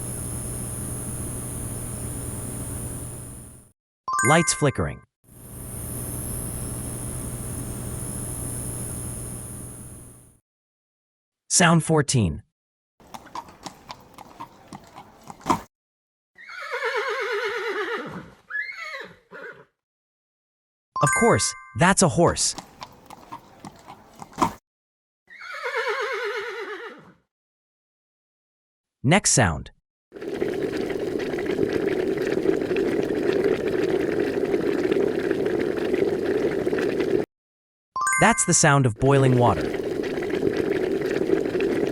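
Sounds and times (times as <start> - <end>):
water boiling hard in a pot: 0.0 - 3.6, 5.3 - 10.3, 30.2 - 37.3, 39.0 - 41.9
horse whinnying: 16.4 - 19.7, 25.3 - 27.2.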